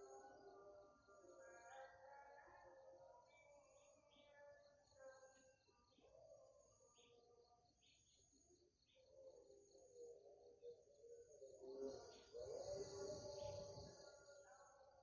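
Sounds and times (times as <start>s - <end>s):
faint bird chirps: 3.2s - 15.0s.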